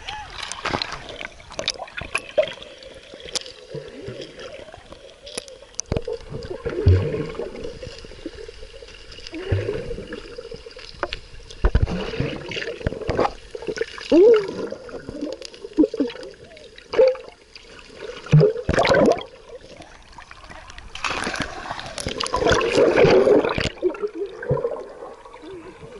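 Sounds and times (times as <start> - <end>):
water splashing around swimmer: 11.6 - 25.9.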